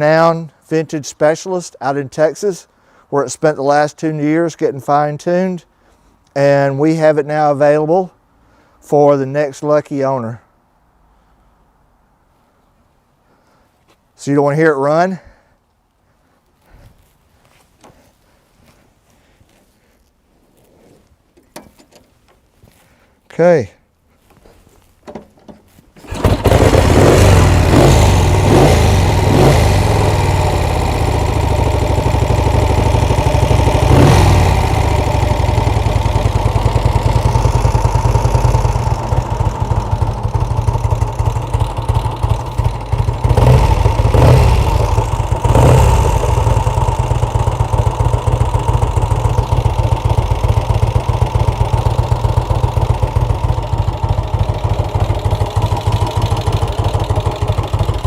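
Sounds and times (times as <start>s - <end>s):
motorcycle engine revving and idling: 26.0s - 58.0s.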